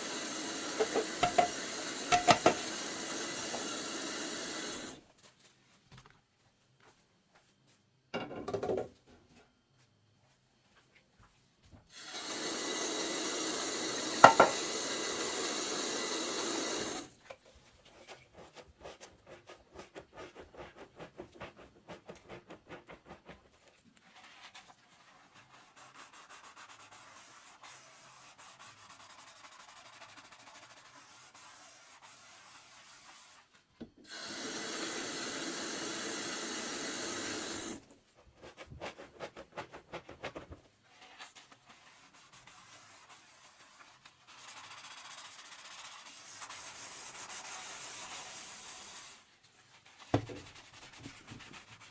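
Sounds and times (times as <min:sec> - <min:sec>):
sponge scrubbing dishes: 0:00.0 - 0:05.0, 0:14.0 - 0:17.0, 0:17.6 - 0:33.6, 0:38.3 - 0:48.4, 0:49.7 - 0:51.9.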